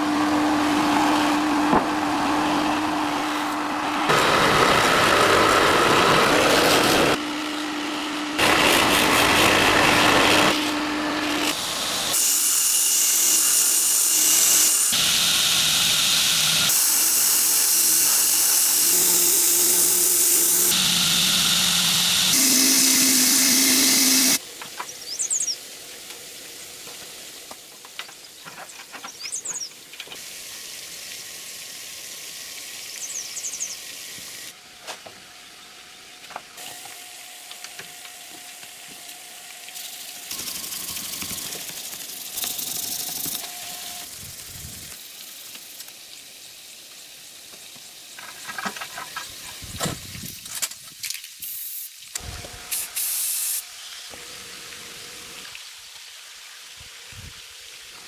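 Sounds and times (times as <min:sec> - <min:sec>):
power grinder grinding knife blade: 0:02.7 - 0:24.4.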